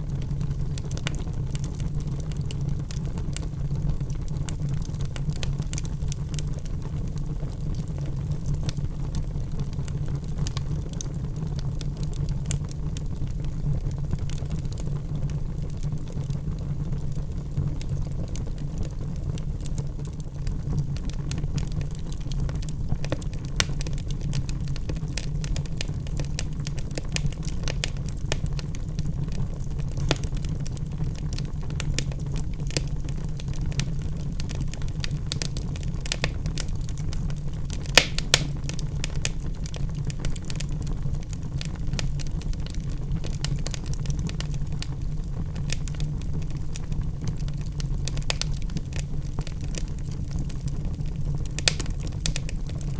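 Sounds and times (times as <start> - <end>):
fire crackling and popping: 0.0 - 52.9
low rumble of flame: 0.0 - 52.9.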